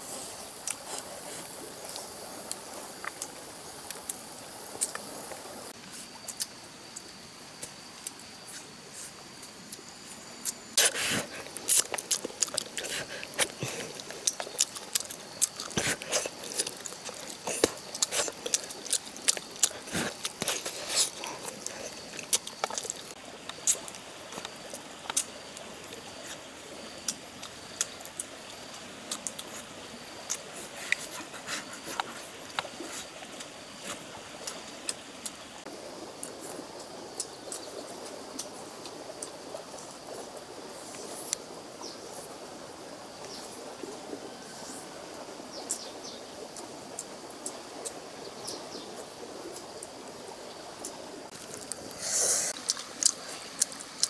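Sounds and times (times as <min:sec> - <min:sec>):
wet chewing and lip-smacking: 0:10.8 - 0:25.4, 0:52.5 - 0:54.0.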